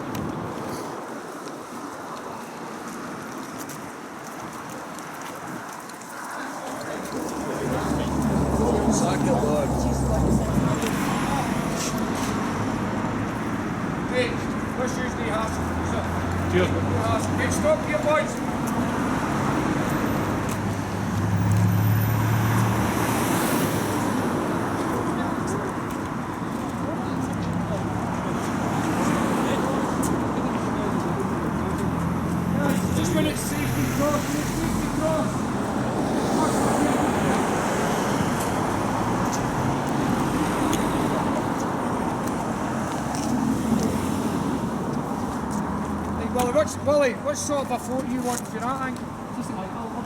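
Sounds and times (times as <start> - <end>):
steady traffic hum: 0.0 - 50.0
vehicle passing close: 6.8 - 25.7, 26.9 - 48.2.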